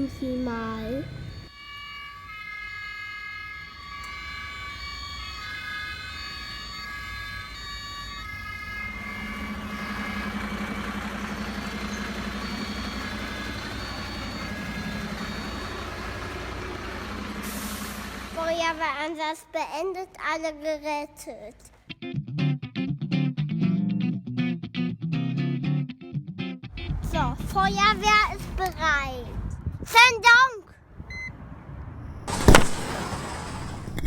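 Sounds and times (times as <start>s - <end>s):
rumbling truck engine sound: 0.0s - 1.5s, 4.2s - 19.0s, 26.7s - 29.9s, 30.8s - 34.0s
toy fire engine siren: 0.0s - 18.5s.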